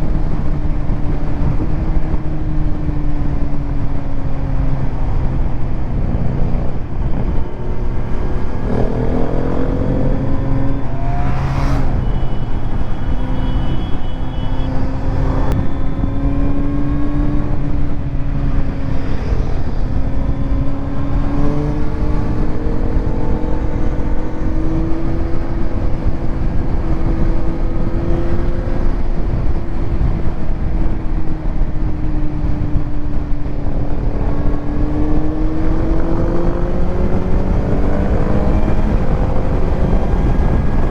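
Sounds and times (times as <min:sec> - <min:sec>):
constant rushing noise: 0:00.0 - 0:40.9
motorcycle engine revving: 0:06.4 - 0:31.0, 0:33.4 - 0:40.9.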